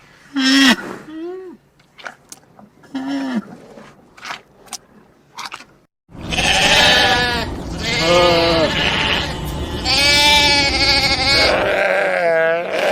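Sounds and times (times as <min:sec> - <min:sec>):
long wavering bleats: 0:06.2 - 0:12.9.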